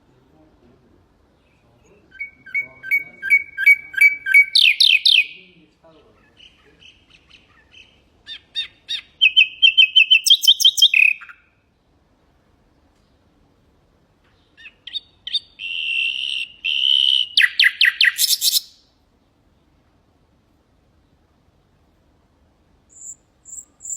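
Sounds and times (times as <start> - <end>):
nightingale singing: 1.3 - 11.7, 14.3 - 19.0, 22.9 - 23.9.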